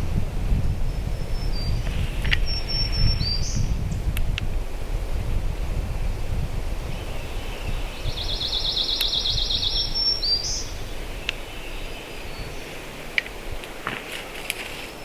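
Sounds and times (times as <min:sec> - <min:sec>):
wind buffeting microphone: 0:00.0 - 0:15.0
songbird trilling: 0:00.9 - 0:03.9, 0:06.9 - 0:13.4.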